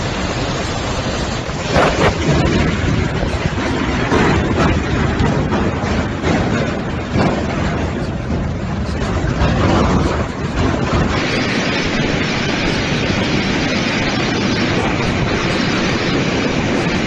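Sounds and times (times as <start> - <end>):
strong storm wind rushing: 0.0 - 17.0.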